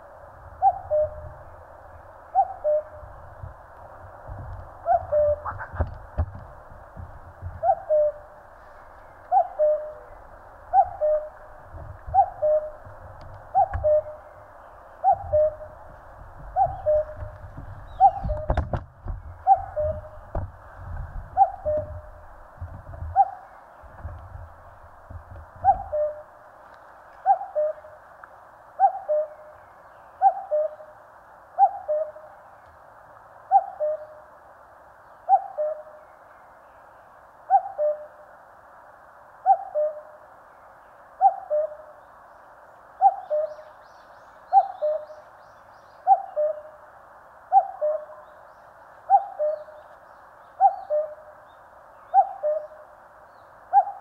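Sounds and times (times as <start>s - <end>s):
cuckoo calling: 0.6s - 1.6s, 2.3s - 3.2s, 4.8s - 5.8s, 7.5s - 15.9s, 16.5s - 20.3s, 21.3s - 22.3s, 23.1s - 23.7s, 25.6s - 26.3s, 27.2s - 28.0s, 28.8s - 29.5s, 30.1s - 30.9s, 31.6s - 32.4s, 33.5s - 34.3s, 35.2s - 36.1s, 37.5s - 38.2s, 39.4s - 40.2s, 41.2s - 42.0s, 43.0s - 45.3s, 45.9s - 46.9s, 47.5s - 48.4s, 49.1s - 54.0s
low thumps: 5.4s - 7.7s, 16.4s - 23.2s.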